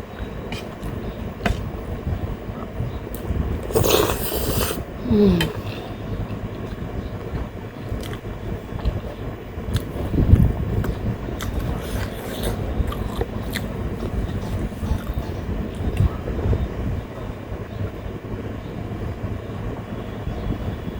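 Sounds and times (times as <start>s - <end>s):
electric fan humming: 0.0s - 20.9s
chewing and lip smacks: 8.0s - 8.2s, 10.8s - 16.1s.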